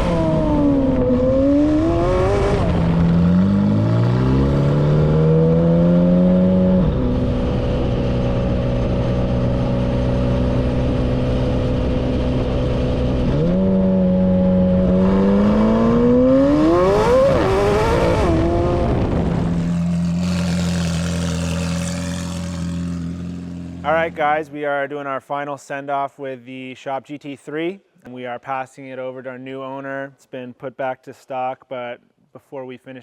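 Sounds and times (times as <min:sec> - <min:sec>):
car engine accelerating: 0:00.0 - 0:24.2.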